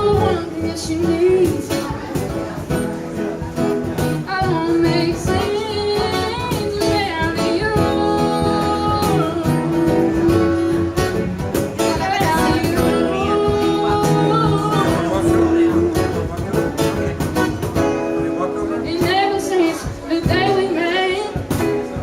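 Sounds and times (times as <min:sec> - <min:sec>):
person singing: 0:00.0 - 0:02.1, 0:04.3 - 0:16.4, 0:18.9 - 0:21.4
cajon beat: 0:00.0 - 0:22.0
strummed acoustic guitar: 0:00.0 - 0:22.0.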